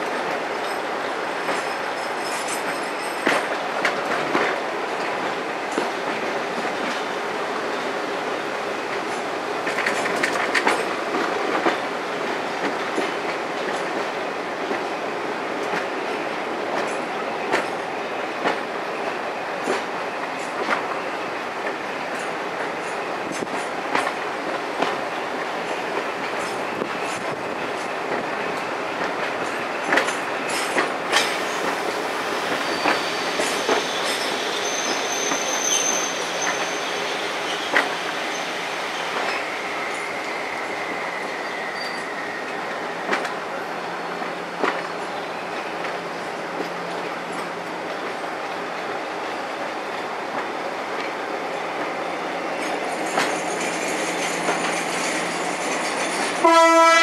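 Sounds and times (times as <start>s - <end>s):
train wheels rumbling on rail: 0.0s - 57.0s
sharp rail clicks: 29.0s - 40.4s, 52.6s - 56.5s
high wheel squeals: 31.1s - 42.6s.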